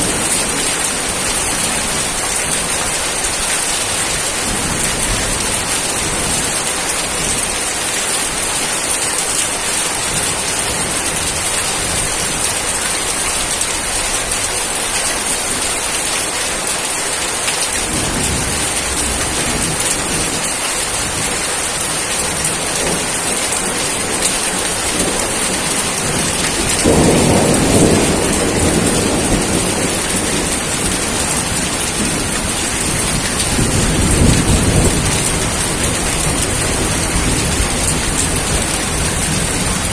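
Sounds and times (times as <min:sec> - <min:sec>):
heavy rain falling: 0:00.0 - 0:39.9
thunder rolling: 0:17.9 - 0:20.4, 0:24.9 - 0:39.9.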